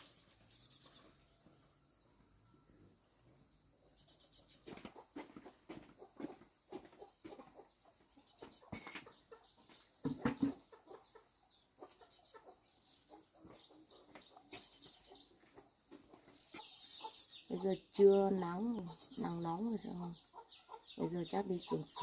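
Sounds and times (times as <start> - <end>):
high chirping calls: 0.3 - 1.2, 3.8 - 4.8, 7.6 - 22.0
chickens clucking: 4.0 - 22.0.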